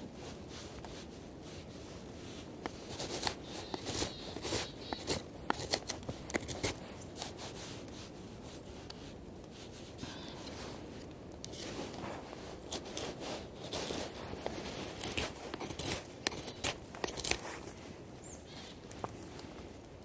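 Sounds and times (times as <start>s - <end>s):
dry twigs snapping: 2.6s - 7.4s, 12.6s - 17.8s.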